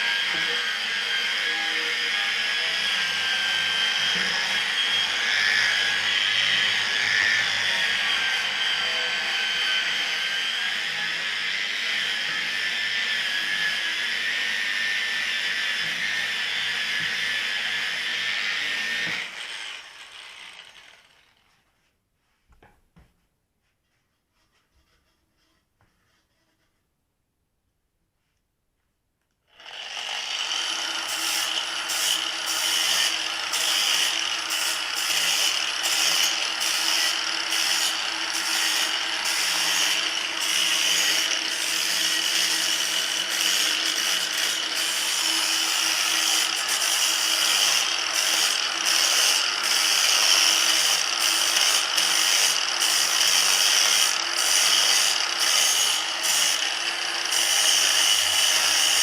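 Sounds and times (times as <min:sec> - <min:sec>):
power tool running: 0:00.0 - 0:21.5, 0:29.5 - 0:59.0.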